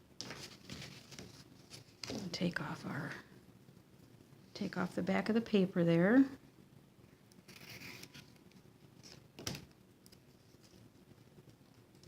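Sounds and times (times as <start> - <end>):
paper and tape backing rustling: 0.2 - 2.4, 7.4 - 12.0.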